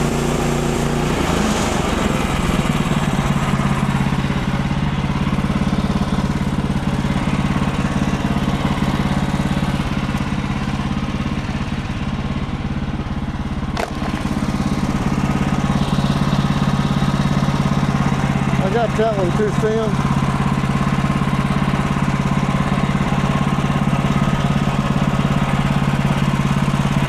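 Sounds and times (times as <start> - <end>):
blade sawing through log: 0.0 - 8.0
sawmill engine running: 0.0 - 27.0.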